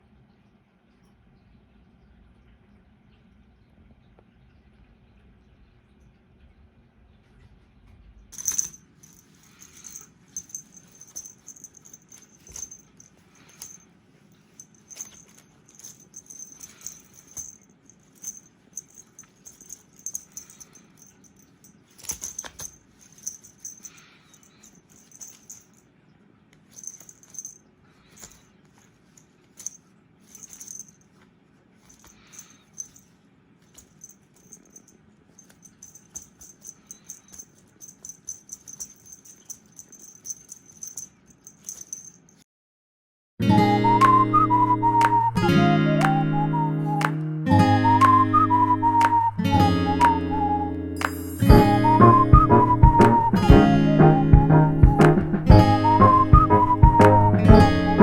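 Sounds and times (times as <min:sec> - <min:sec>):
cat toy rattling and jingling: 0:08.4 - 0:13.8, 0:14.4 - 0:25.8, 0:26.6 - 0:31.2, 0:31.8 - 0:42.4.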